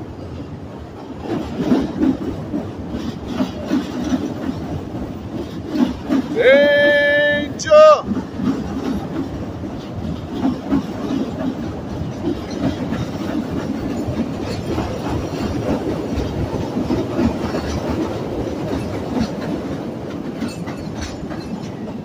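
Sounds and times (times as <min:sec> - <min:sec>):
train rumbling and clattering: 0:00.0 - 0:22.0
person shouting: 0:06.4 - 0:08.1.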